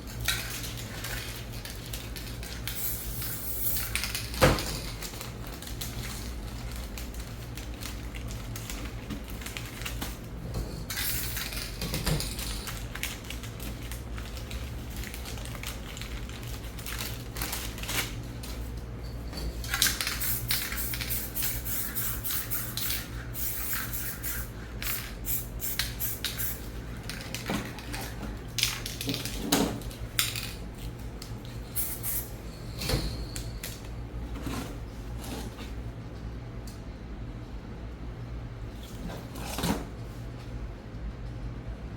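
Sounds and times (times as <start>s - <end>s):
spray paint can hissing: 2.7s - 4.2s, 19.9s - 26.7s, 31.7s - 32.3s.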